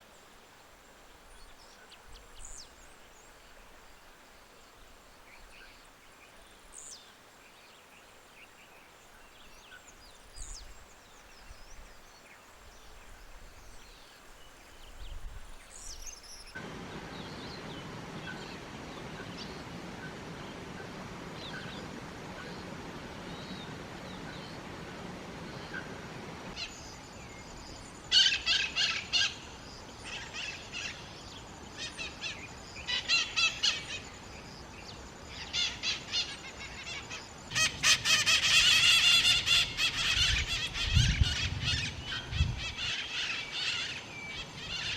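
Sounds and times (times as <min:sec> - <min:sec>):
distant bird calls: 0:01.3 - 0:44.9
loud nearby bird calls: 0:35.4 - 0:44.9.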